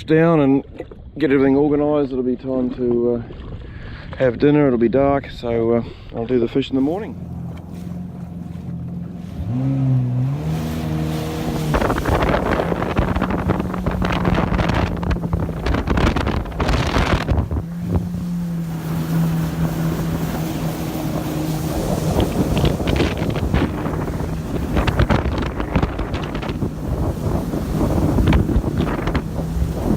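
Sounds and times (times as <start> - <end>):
rushing water: 6.4 - 29.9
wind buffeting microphone: 6.4 - 29.9
jet ski engine drone: 6.5 - 29.9.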